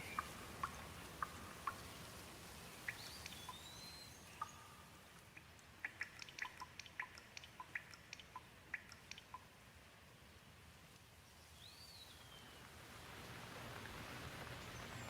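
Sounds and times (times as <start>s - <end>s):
raindrops dripping and tapping: 0.0s - 3.7s, 4.4s - 9.5s, 12.6s - 15.0s
faint rain hiss: 0.0s - 15.0s.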